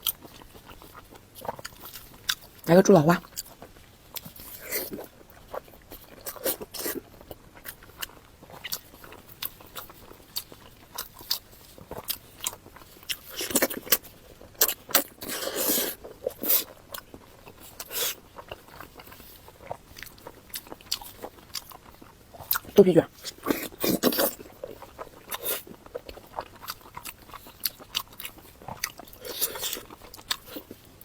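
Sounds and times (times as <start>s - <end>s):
wet chewing sounds: 0.0s - 31.0s.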